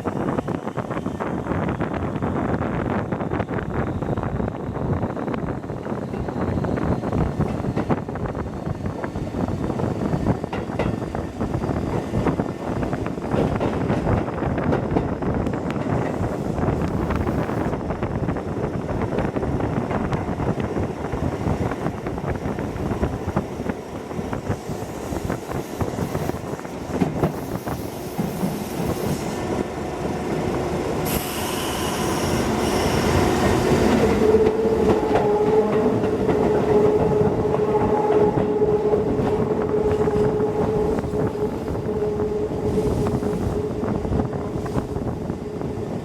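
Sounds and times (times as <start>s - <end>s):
train rumble: 0.0s - 46.0s
hiss: 31.0s - 33.0s.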